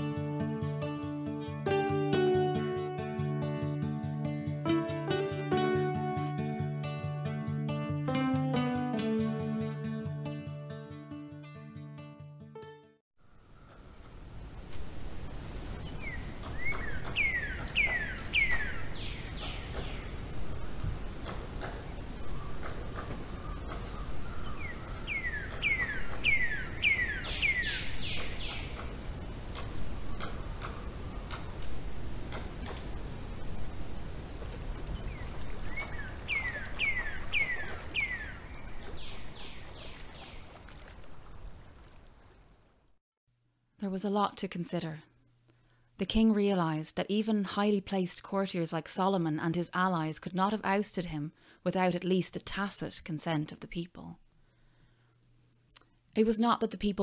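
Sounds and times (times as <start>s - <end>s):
bird singing falling whistles: 15.8s - 20.0s
bird whistling falling notes: 15.8s - 20.1s, 23.2s - 28.7s, 35.0s - 40.4s.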